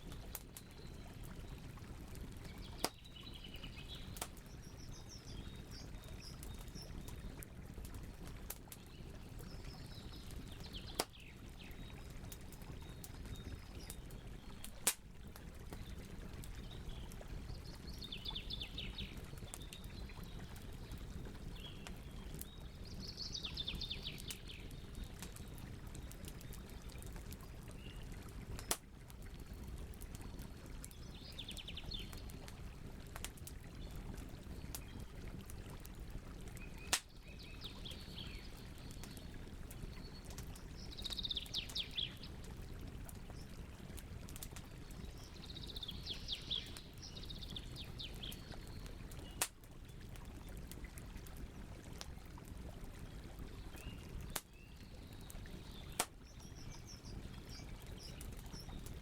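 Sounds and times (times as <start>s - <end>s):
wood fire crackling: 0.0s - 3.2s, 4.0s - 11.6s, 12.2s - 17.7s, 24.2s - 31.0s, 32.2s - 37.0s, 47.7s - 51.3s.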